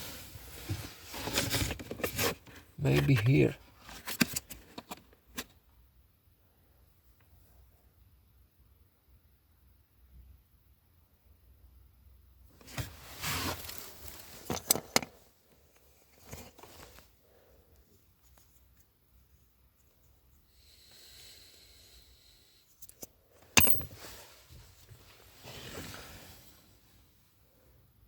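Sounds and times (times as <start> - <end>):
plastic parts clicking and scraping: 3.9 - 5.5, 13.4 - 15.2.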